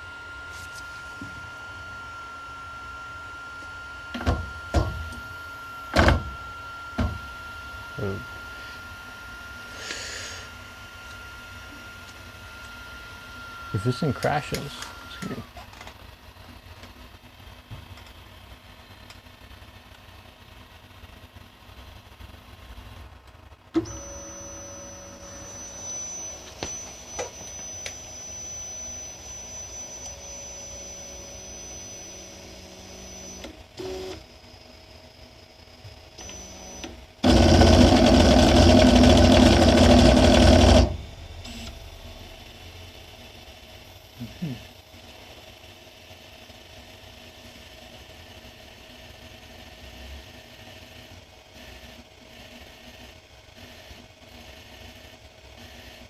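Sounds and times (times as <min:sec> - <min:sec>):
stepper motors whining: 0:00.0 - 0:16.1, 0:23.8 - 0:45.8.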